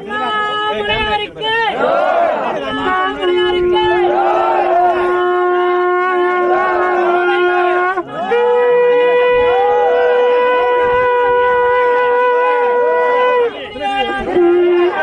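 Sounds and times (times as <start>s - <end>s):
conch shell blasts: 4.9s - 13.5s.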